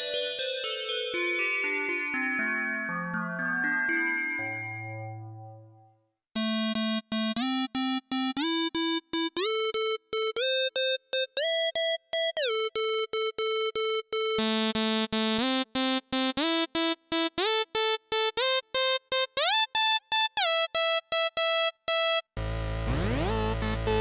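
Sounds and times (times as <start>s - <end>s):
synthesizer short repeated notes: 6.4s - 24.0s
lower synthesizer line: 22.4s - 24.0s.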